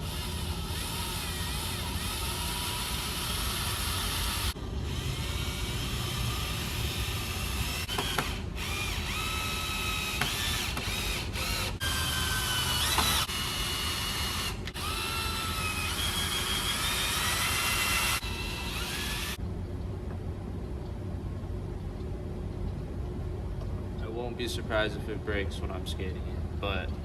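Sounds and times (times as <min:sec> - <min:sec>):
cordless drill driving screws: 0:00.0 - 0:19.4.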